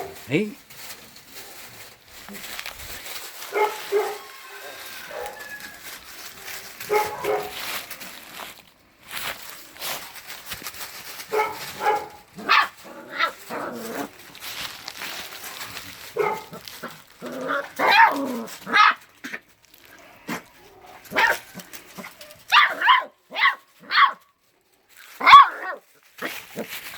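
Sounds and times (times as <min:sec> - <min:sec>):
dog barking: 0:03.5 - 0:05.6, 0:06.9 - 0:07.7, 0:11.3 - 0:13.3, 0:16.2 - 0:16.6, 0:17.8 - 0:19.0, 0:21.1 - 0:21.6, 0:22.5 - 0:24.2, 0:25.2 - 0:25.8.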